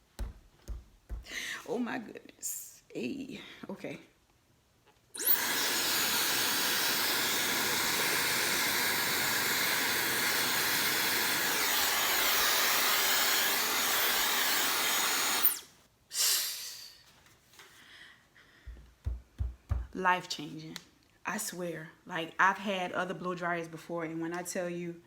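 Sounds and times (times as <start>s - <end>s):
hair dryer blowing air: 5.2s - 15.7s.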